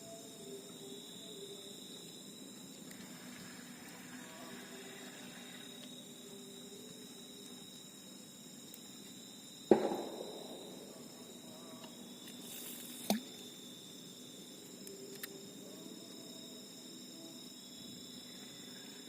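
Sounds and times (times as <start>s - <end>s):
high insect chirring: 0.0s - 19.0s
sharp knock: 9.7s - 10.3s
light click: 14.8s - 15.4s.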